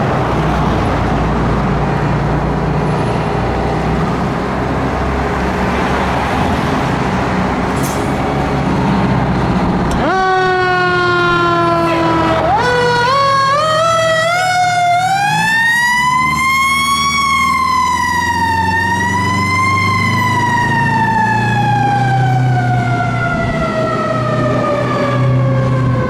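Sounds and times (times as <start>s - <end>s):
fire truck siren: 0.0s - 26.0s
truck engine and road noise: 0.0s - 26.0s.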